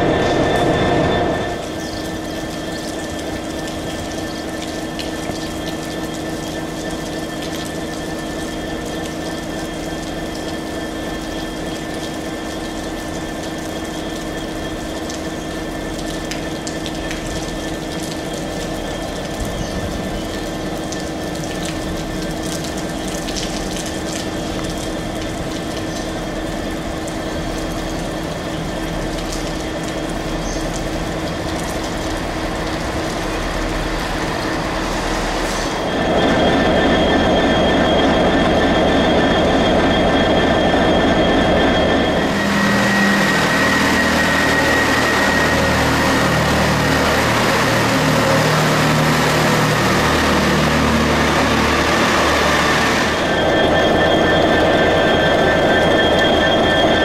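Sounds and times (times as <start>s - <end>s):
train arriving: 0.0s - 16.8s, 31.1s - 57.0s
diesel engine drone: 0.0s - 57.0s
high squeal: 33.1s - 57.0s.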